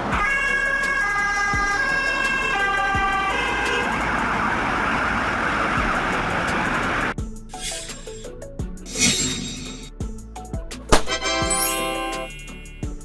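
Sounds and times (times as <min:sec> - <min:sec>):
two-tone police siren wail: 0:00.1 - 0:07.2
vehicle rushing noise: 0:01.8 - 0:08.3.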